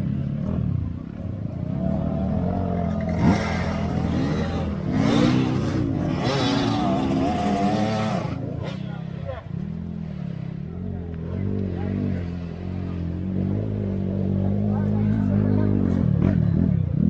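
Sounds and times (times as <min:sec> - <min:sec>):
vehicle engine revving: 0:00.0 - 0:09.2.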